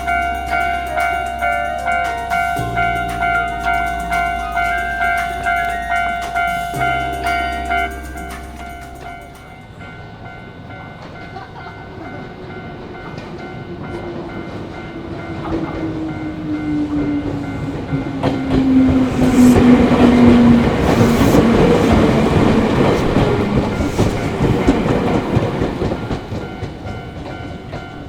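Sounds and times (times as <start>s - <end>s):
crossing bell ringing: 0.0s - 28.0s
train wheels clattering: 10.9s - 28.0s
train motor whine: 16.4s - 26.8s.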